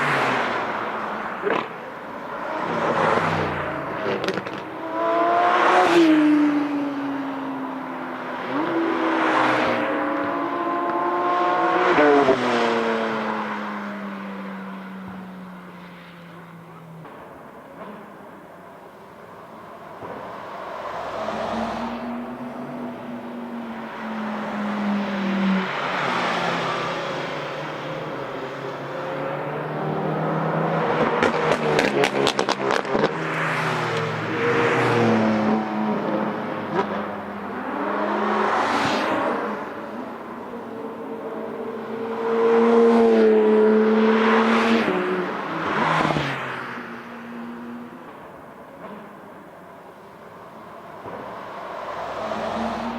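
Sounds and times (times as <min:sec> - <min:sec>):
sports car accelerating past: 0:00.0 - 0:52.9
exhaust popping: 0:01.4 - 0:04.9.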